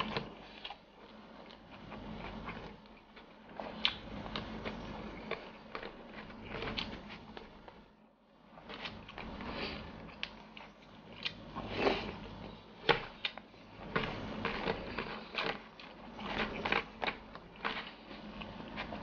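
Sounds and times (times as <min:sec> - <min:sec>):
crunchy chewing: 0:00.0 - 0:07.8, 0:08.6 - 0:19.0
crackles of plastic tray: 0:12.4 - 0:19.0.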